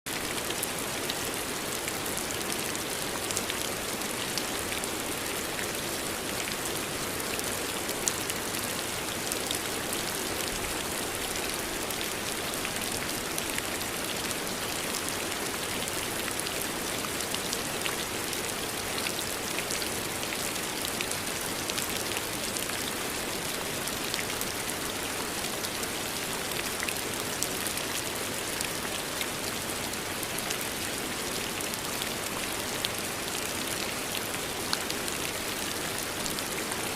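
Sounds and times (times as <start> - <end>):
rain falling: 0.1 - 36.9.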